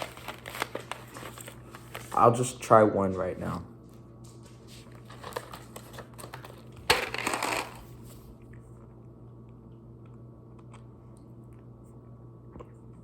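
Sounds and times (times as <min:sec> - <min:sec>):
rattling crunch of candy: 0:00.0 - 0:02.5, 0:05.0 - 0:08.0.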